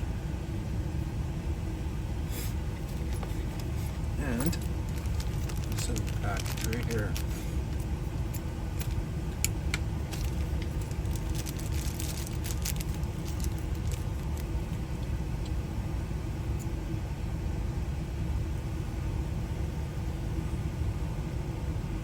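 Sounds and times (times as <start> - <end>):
clicks and rattles of handling: 2.8 - 15.1.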